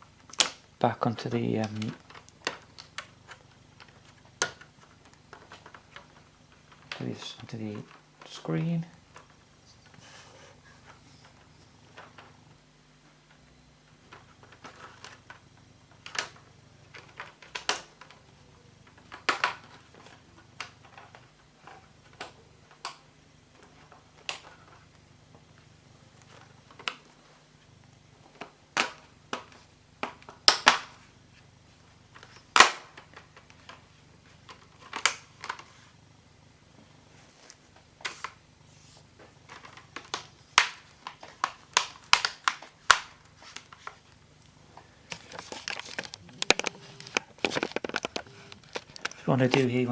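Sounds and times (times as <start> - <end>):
plastic clips snapping into place: 16.0 - 18.2, 28.4 - 30.9, 32.2 - 33.8, 39.5 - 44.0, 45.1 - 49.6.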